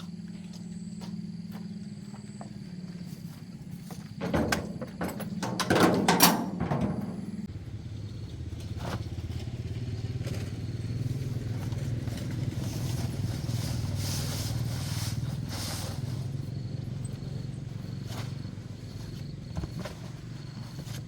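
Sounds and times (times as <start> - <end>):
engine idling: 0.0 - 21.0
short hissing or brushing noises: 13.8 - 16.4.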